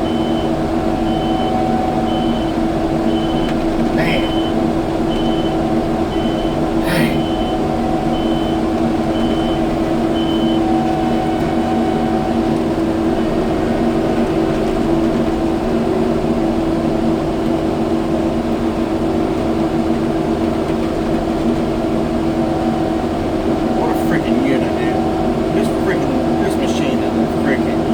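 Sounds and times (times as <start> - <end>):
backup alarm beeping: 0.0 - 12.4, 22.4 - 27.9
diesel engine running: 0.0 - 27.9.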